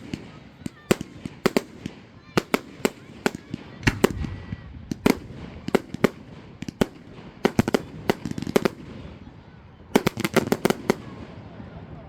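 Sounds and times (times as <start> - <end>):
fireworks bangs: 0.0 - 12.0
low rumble: 3.8 - 5.7.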